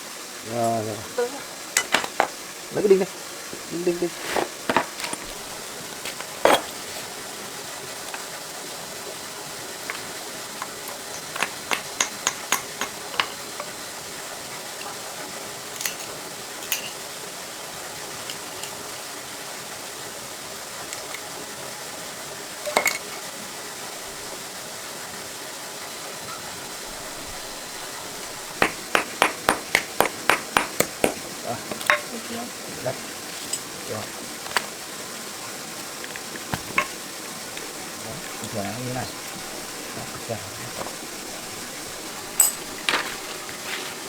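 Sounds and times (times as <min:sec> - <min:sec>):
steady hiss: 0:00.0 - 0:44.0
metal tools tapping metal: 0:01.8 - 0:02.3, 0:04.3 - 0:06.8, 0:09.9 - 0:13.8, 0:15.8 - 0:17.1, 0:27.1 - 0:32.1, 0:37.6 - 0:43.4.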